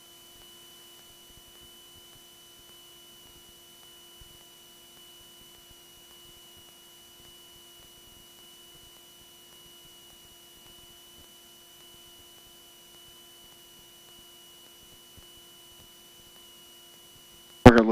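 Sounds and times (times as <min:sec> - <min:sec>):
high whine: 0:17.6 - 0:17.9.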